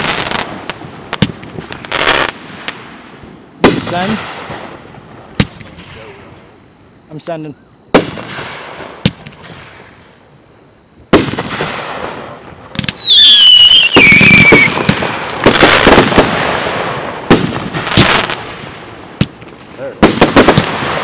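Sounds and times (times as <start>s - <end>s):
fireworks crackle: 0.0s - 6.3s, 11.1s - 21.0s
fireworks bursting: 0.0s - 6.6s, 7.9s - 10.1s, 11.0s - 21.0s
falling whistle: 12.9s - 14.8s.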